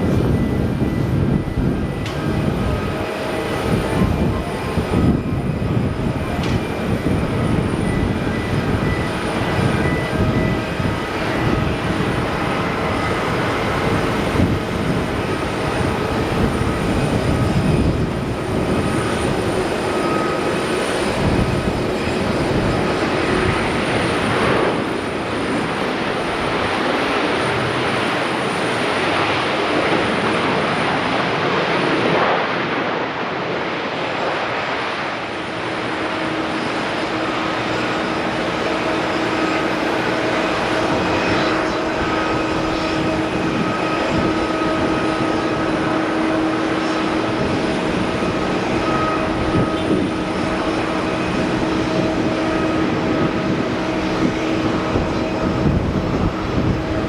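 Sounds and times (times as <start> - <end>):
jet engines rumbling: 0.0 - 57.0
faint whining tones: 35.5 - 57.0.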